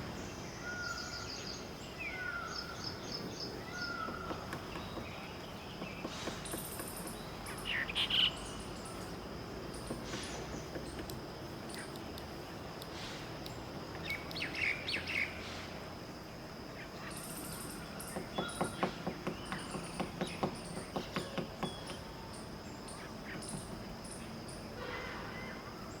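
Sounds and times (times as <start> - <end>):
woodpecker pecking at wood: 18.1 - 22.1.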